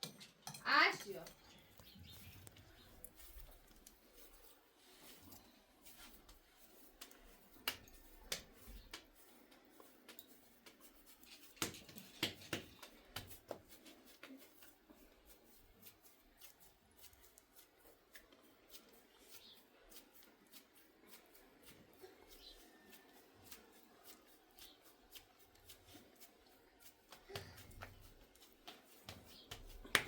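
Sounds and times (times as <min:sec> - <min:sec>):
sharp clicks and taps: 0:07.0 - 0:09.1.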